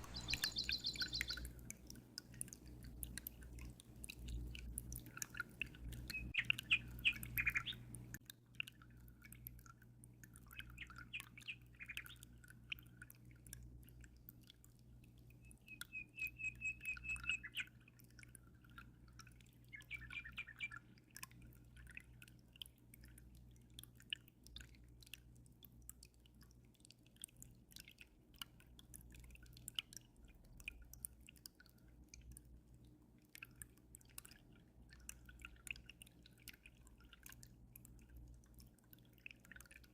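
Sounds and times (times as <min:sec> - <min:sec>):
bird trill: 0:00.0 - 0:01.5, 0:06.1 - 0:07.9, 0:15.4 - 0:17.7, 0:19.7 - 0:20.8
small birds chirping: 0:00.0 - 0:01.6, 0:05.9 - 0:08.2, 0:10.6 - 0:12.3, 0:15.4 - 0:17.8, 0:19.6 - 0:21.0
water dripping and trickling: 0:00.0 - 0:39.9.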